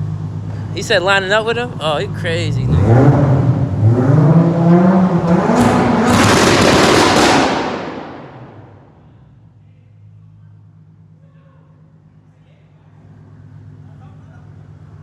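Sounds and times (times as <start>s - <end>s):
car engine revving: 0.0s - 9.4s
exhaust crackling: 0.0s - 10.8s.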